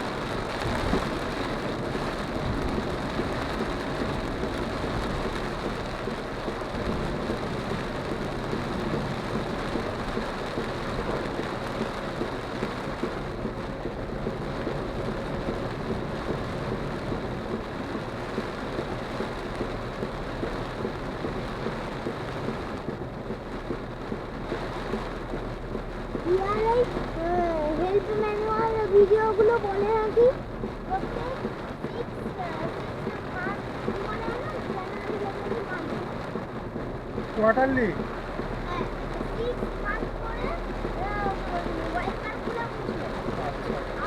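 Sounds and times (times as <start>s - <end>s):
heavy rain drumming on car roof: 0.0s - 44.0s.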